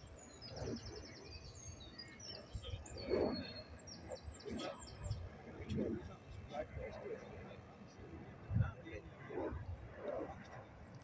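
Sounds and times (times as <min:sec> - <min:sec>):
small birds singing: 0:00.0 - 0:05.5
wind rumble on microphone: 0:00.0 - 0:11.0.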